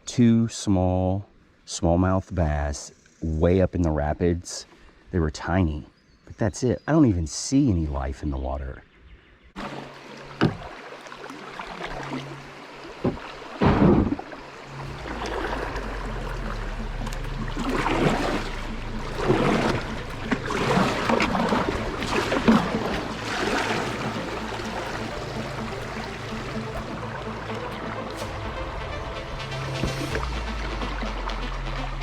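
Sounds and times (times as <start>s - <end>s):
water splashing around kayak: 9.6s - 32.0s.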